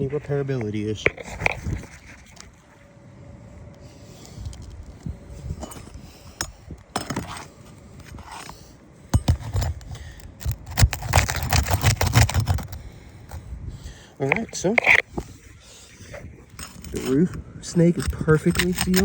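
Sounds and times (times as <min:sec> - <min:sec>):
shingle scraping and clicking: 0:00.2 - 0:02.6, 0:05.6 - 0:13.4, 0:14.2 - 0:15.3, 0:16.4 - 0:19.0.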